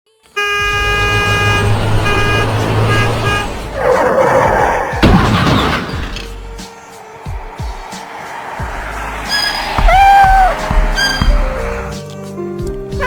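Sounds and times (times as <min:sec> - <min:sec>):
truck horn honking: 0:00.3 - 0:04.0, 0:09.2 - 0:12.0
low engine rumble: 0:05.0 - 0:12.1
loud noisy rush: 0:06.7 - 0:11.9.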